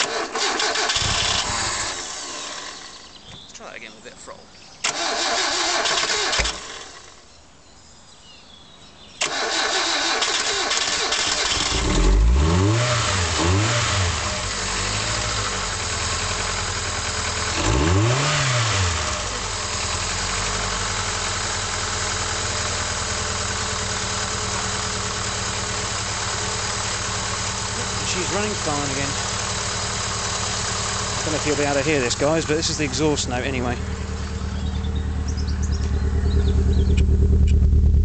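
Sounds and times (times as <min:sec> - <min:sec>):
car engine starting and revving: 0:00.0 - 0:03.2, 0:04.8 - 0:07.2, 0:09.2 - 0:38.0
car engine idling: 0:09.8 - 0:38.0.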